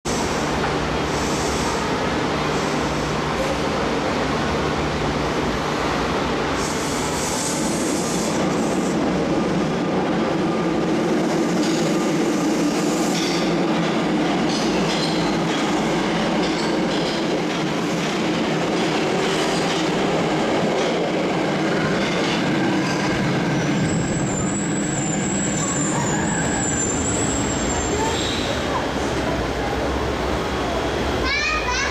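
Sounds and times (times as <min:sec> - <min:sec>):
subway train wheels rumbling: 0:00.0 - 0:31.9
high wheel squeal: 0:23.6 - 0:28.6.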